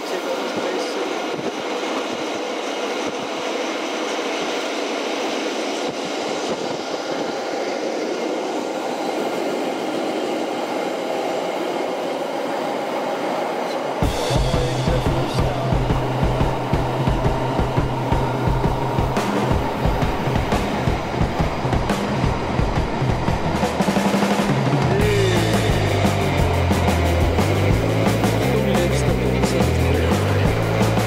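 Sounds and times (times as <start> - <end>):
train rumbling on track: 0.0 - 31.0
music with bass beat: 14.0 - 23.8, 24.4 - 31.0.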